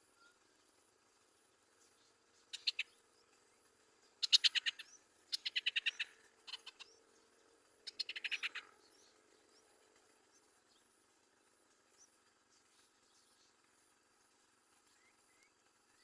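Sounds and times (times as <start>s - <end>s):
bird chirping: 1.6s - 10.9s.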